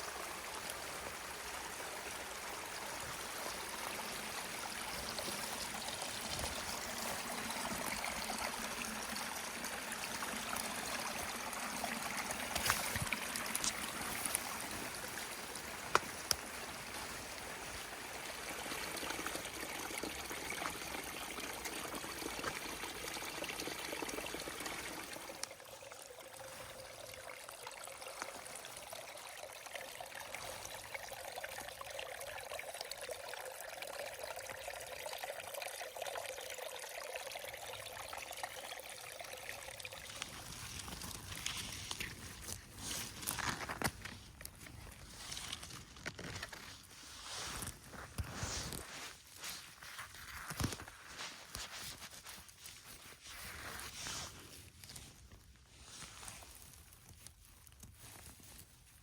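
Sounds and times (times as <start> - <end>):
stream water running: 0.0 - 59.0.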